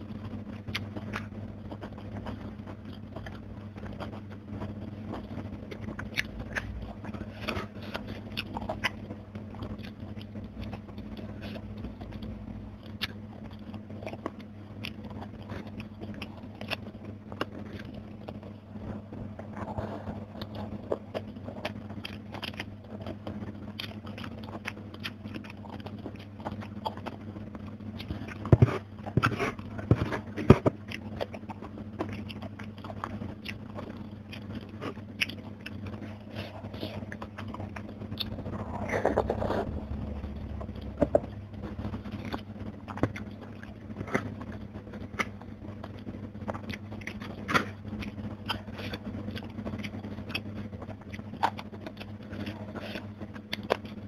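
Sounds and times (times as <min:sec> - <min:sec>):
chewing crispy fried fish: 0:00.0 - 0:54.0
faint steady hum: 0:00.0 - 0:54.0
fingers picking at food: 0:00.0 - 0:54.0.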